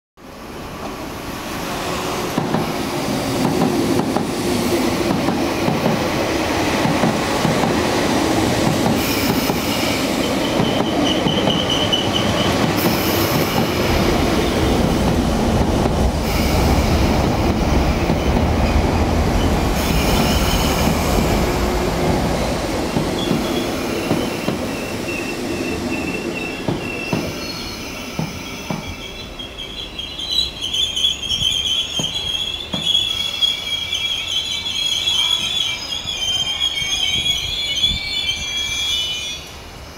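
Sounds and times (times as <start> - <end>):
rumble of wheels on rail: 0.2 - 39.9
high wheel squeals: 9.0 - 13.6, 19.4 - 21.2, 23.2 - 39.5.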